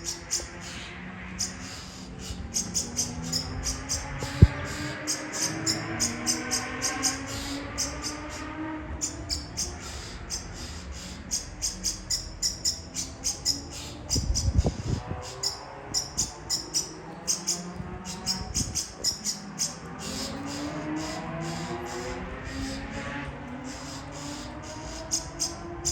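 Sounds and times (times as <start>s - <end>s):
bird chirping: 0.0s - 23.0s, 23.6s - 25.9s.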